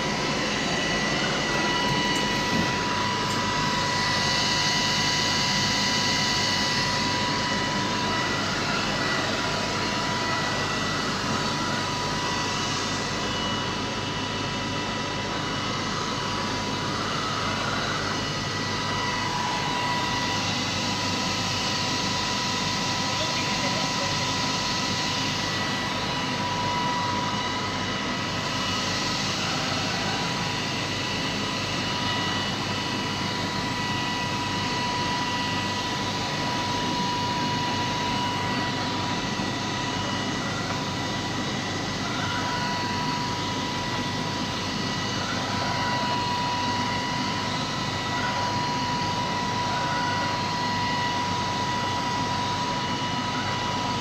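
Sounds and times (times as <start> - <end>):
robot vacuum cleaner whirring: 0.0 - 5.3.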